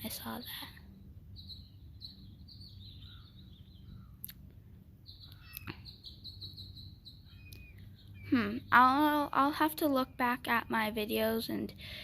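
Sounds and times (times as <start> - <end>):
finches chirping: 0.0 - 4.3, 5.0 - 12.0.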